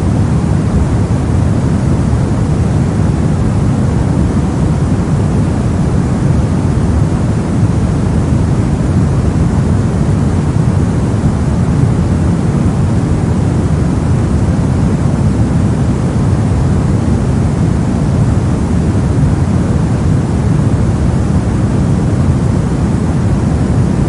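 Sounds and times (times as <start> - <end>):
brown noise: 0.0 - 24.0.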